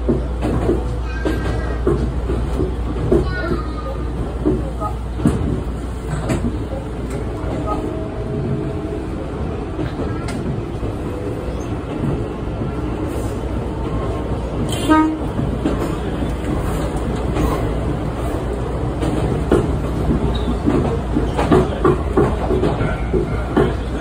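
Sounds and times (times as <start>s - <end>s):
train wheels rumbling on rails: 0.0s - 24.0s
train horn toot: 14.7s - 15.3s.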